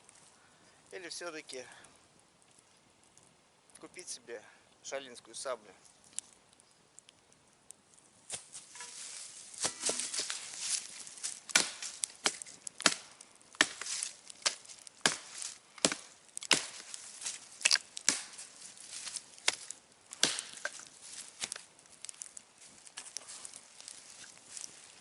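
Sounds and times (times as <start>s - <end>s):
wood being chopped: 9.6s - 18.5s, 19.4s - 21.6s.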